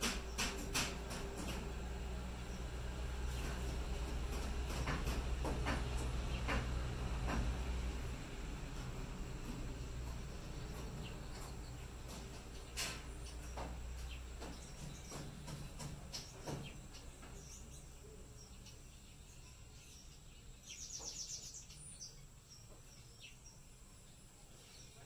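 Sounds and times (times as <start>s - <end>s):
bird chirps: 13.2s - 25.0s.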